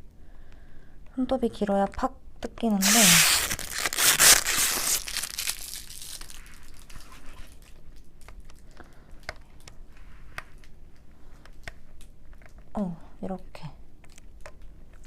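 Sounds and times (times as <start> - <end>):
plastic film crinkling: 2.8 - 8.7.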